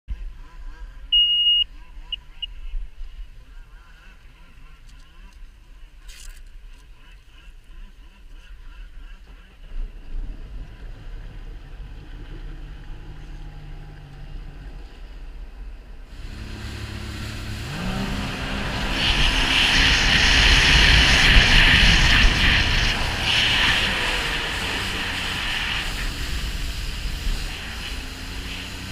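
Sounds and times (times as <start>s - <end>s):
jet ski engine revving: 7.0s - 28.9s.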